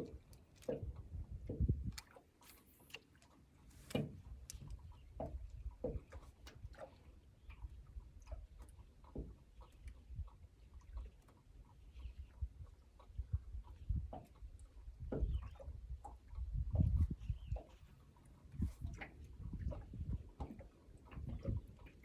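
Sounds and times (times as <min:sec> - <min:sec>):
fishing tackle clicks and knocks: 0:00.0 - 0:03.2.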